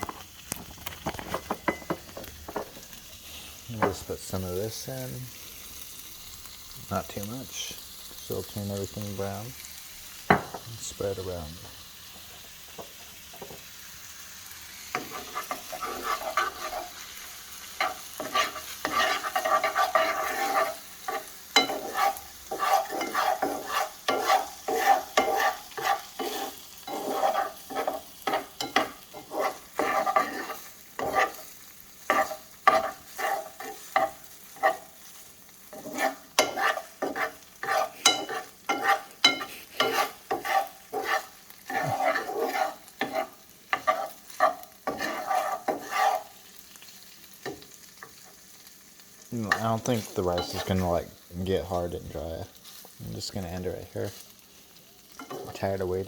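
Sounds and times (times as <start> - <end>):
rice sizzling in a pan: 0.0 - 56.0
utensil scraping a pan: 0.9 - 5.2, 14.9 - 48.4, 49.4 - 51.0, 55.2 - 56.0.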